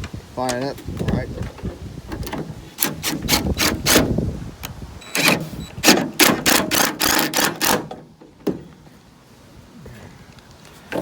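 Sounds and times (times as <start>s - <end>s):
power drill driving screws: 2.8s - 4.1s, 5.0s - 7.9s.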